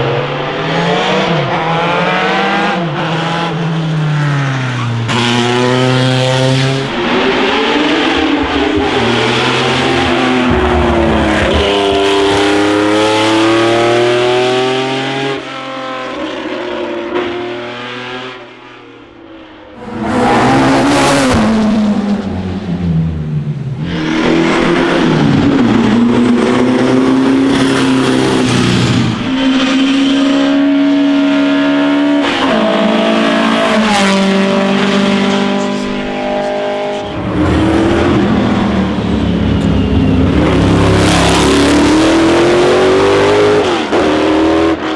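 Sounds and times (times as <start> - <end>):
racing car engines revving high: 0.0 - 19.1, 19.7 - 44.9
car passing close: 4.4 - 14.9, 19.8 - 29.8, 32.9 - 44.8.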